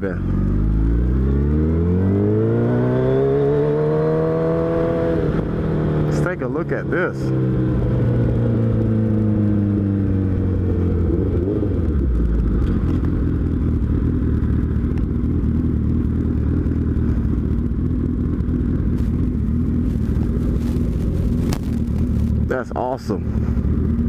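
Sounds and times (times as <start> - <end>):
motorcycle engine idling: 12.0 - 24.0.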